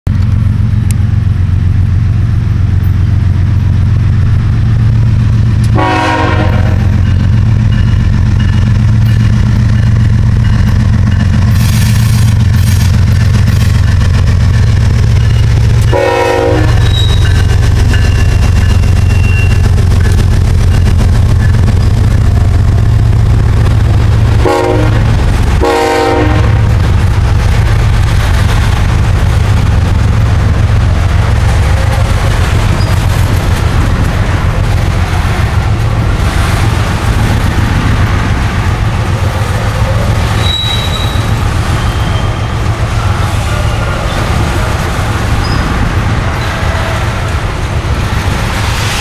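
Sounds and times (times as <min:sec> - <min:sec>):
freight train rumbling past: 0:00.1 - 0:49.0
train horn blasts: 0:05.7 - 0:06.9, 0:15.9 - 0:17.2, 0:24.4 - 0:26.6.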